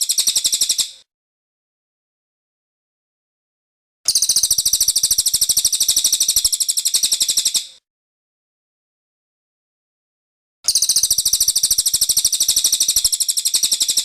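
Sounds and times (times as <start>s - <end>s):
bird trilling: 4.1s - 7.7s, 10.7s - 14.0s.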